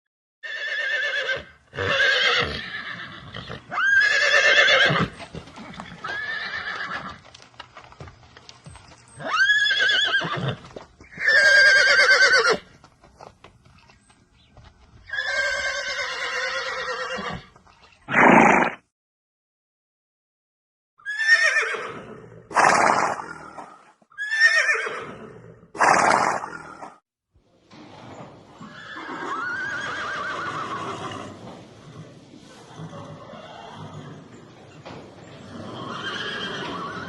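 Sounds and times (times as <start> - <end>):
horse whinnying: 0.4 - 7.2, 9.1 - 12.7, 15.1 - 18.8, 21.0 - 26.9, 28.6 - 37.0.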